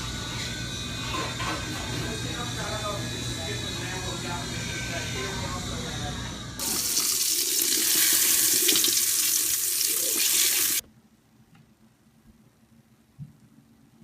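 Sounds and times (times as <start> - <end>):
running water hissing: 6.6 - 10.8.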